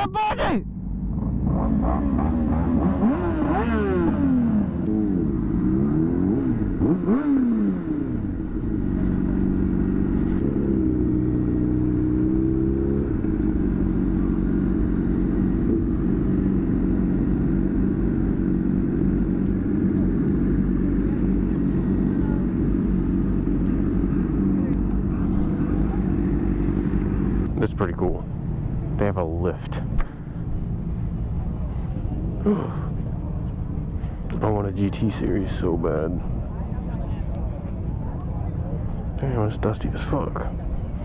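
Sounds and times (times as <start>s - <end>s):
motorcycle engine revving: 0.8s - 27.6s.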